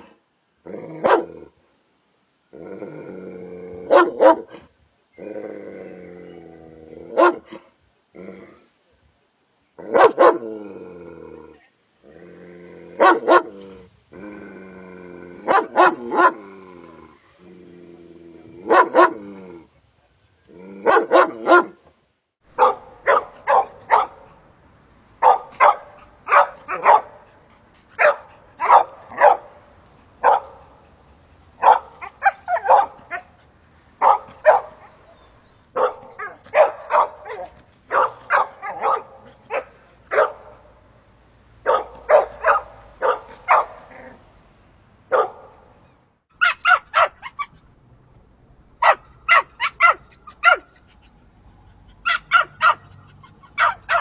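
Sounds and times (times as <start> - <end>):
dog barking: 1.0 - 1.4, 3.9 - 4.6, 7.1 - 7.6, 9.9 - 10.4, 13.0 - 13.5, 15.5 - 16.4, 18.7 - 19.2, 20.8 - 21.8, 22.5 - 24.4, 25.2 - 27.3, 28.0 - 29.6, 30.2 - 30.7, 31.6 - 33.4, 34.0 - 35.2, 35.8 - 40.8, 41.6 - 43.9, 45.1 - 45.6, 46.4 - 47.5, 48.8 - 50.7, 52.0 - 54.0
dog drawn-out calls: 22.5 - 24.4, 25.2 - 40.7, 46.4 - 47.6, 48.8 - 54.0.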